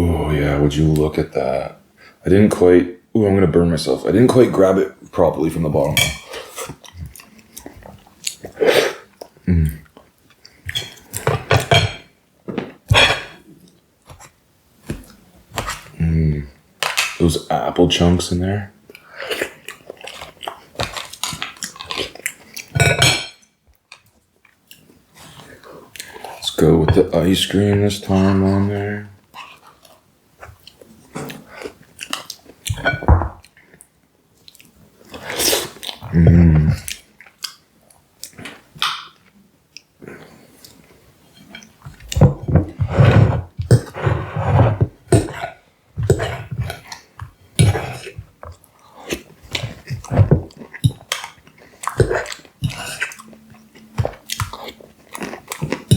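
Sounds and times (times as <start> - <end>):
person chewing: 18.9 - 22.9, 29.3 - 33.8, 34.4 - 37.6, 38.2 - 55.9.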